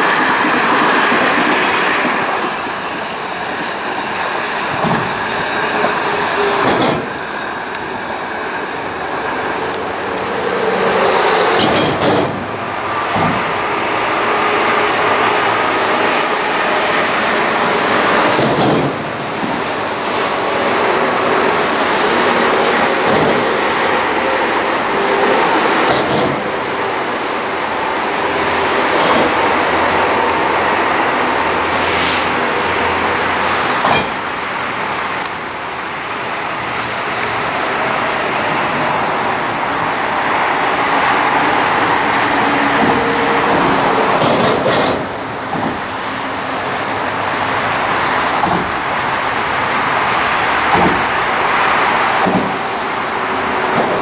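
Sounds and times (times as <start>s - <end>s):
passenger train running: 0.0s - 54.0s.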